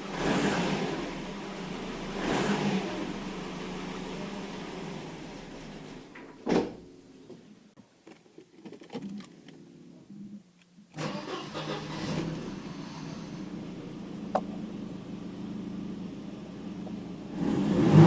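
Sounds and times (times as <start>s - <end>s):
car engine starting and stalling: 0.0s - 6.2s, 10.9s - 18.0s.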